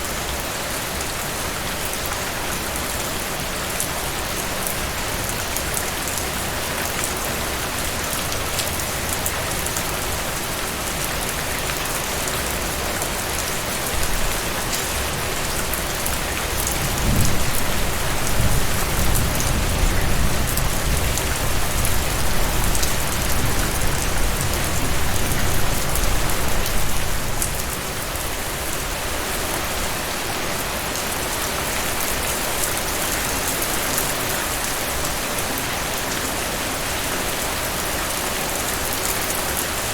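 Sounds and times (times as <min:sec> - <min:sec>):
heavy rain falling: 0:00.0 - 0:39.9
raindrops ticking on a surface: 0:03.7 - 0:28.8
rolling thunder rumble: 0:16.5 - 0:27.6.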